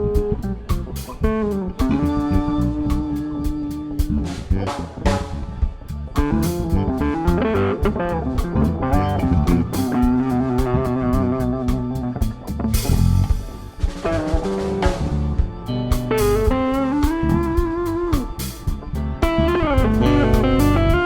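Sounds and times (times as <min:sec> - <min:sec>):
bass guitar: 0:00.0 - 0:21.0
drum kit: 0:00.0 - 0:21.0
electric guitar solo: 0:06.2 - 0:12.2, 0:15.8 - 0:18.3, 0:19.2 - 0:21.0.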